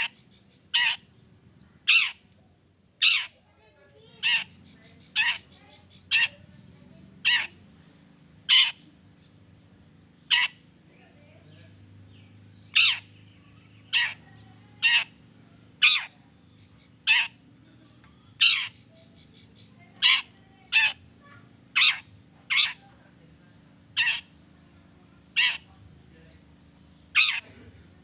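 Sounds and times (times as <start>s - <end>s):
bird giving harsh calls: 0.0s - 1.2s, 1.8s - 2.3s, 3.0s - 3.4s, 4.1s - 6.4s, 7.2s - 7.6s, 8.4s - 9.2s, 10.1s - 10.7s, 12.1s - 17.5s, 18.3s - 22.9s, 23.8s - 24.5s, 25.3s - 25.8s, 26.9s - 28.0s.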